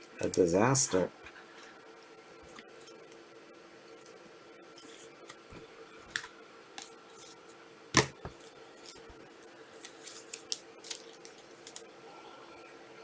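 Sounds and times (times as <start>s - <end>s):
card packs clicking and snapping: 9.8s - 11.9s.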